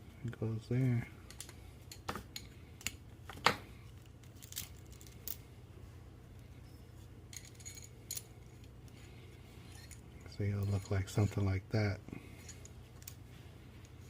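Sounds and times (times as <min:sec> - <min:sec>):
small metal parts clinking: 0:03.9 - 0:05.5, 0:07.3 - 0:11.5, 0:12.3 - 0:13.2.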